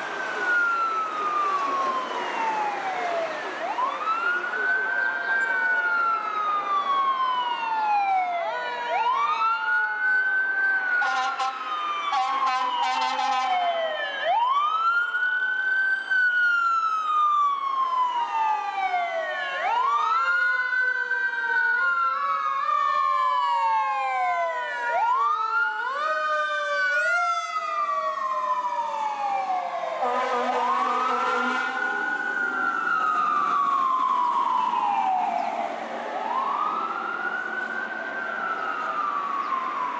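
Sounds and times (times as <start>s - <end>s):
sirens wailing: 0.0s - 39.9s
horn blasts: 11.0s - 13.6s, 30.0s - 32.0s.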